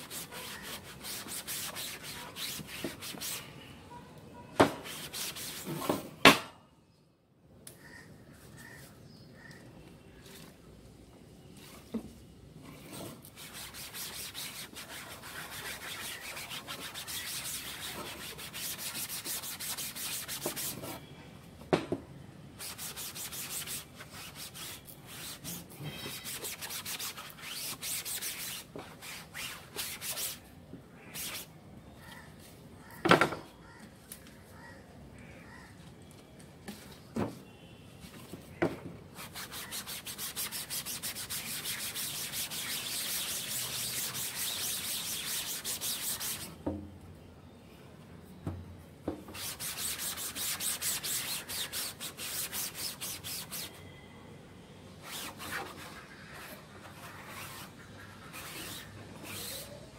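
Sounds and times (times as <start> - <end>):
cloth scrubbing mesh: 39.2 - 46.5.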